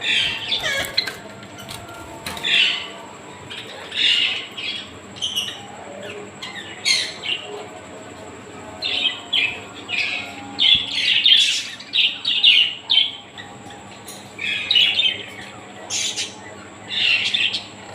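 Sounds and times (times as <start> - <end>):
parrots squawking: 0.0 - 7.5.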